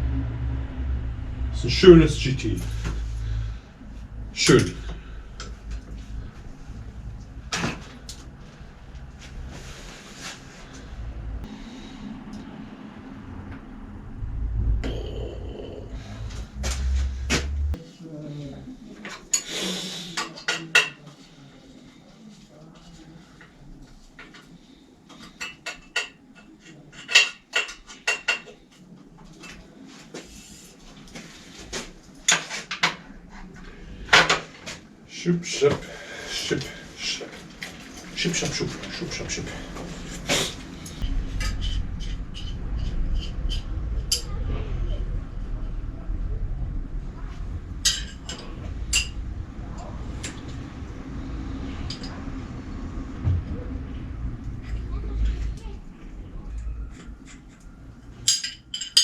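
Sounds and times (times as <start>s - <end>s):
low steady rumble: 0.0s - 17.8s, 36.6s - 58.3s
metal tools clinking: 58.2s - 59.0s.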